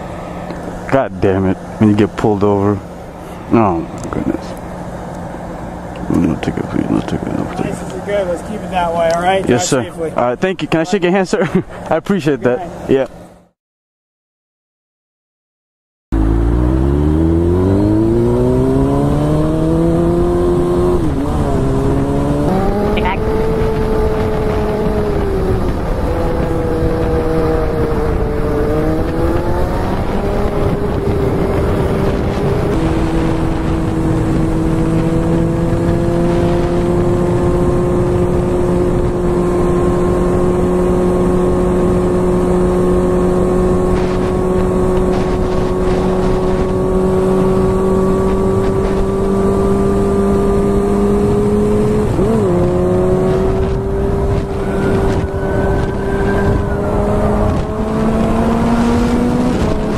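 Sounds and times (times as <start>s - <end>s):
wind rush: 17.2s - 59.9s.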